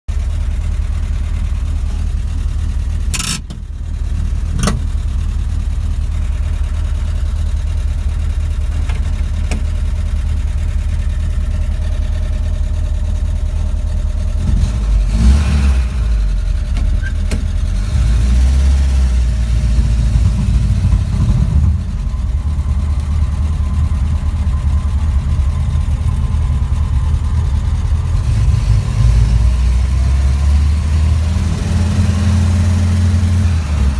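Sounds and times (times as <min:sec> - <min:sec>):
truck engine running: 0:00.1 - 0:33.9.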